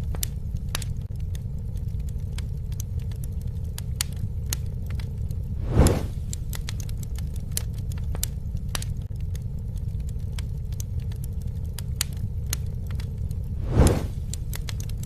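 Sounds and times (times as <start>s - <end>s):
campfire crackling: 0.0s - 15.0s
low rumble: 0.0s - 15.0s
fire whoosh: 4.2s - 9.3s, 11.8s - 15.0s.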